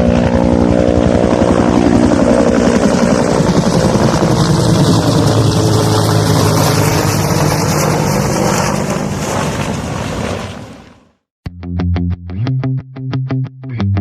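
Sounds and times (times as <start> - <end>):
helicopter rotor blades beating: 0.0 - 11.0.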